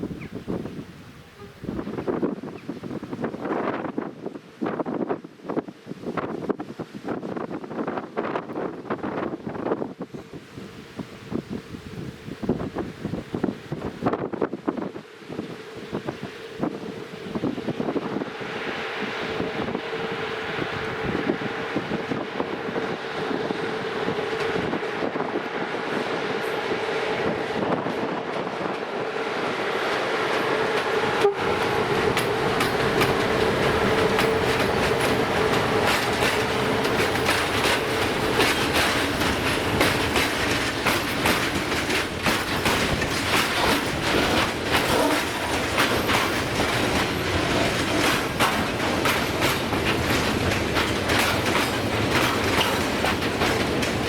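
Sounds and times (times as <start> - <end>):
approaching train steady tone: 0.0 - 54.0
train wheels clicking over rail joints: 19.3 - 25.7, 29.6 - 54.0.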